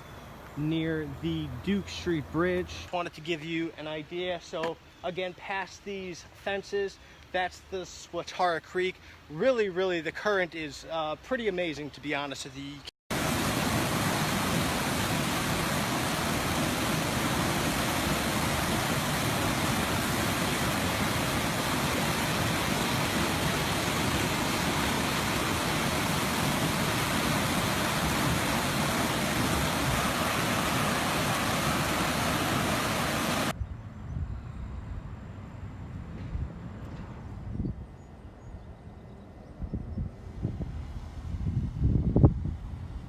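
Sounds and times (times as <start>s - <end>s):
floodwater rushing: 13.1s - 33.5s.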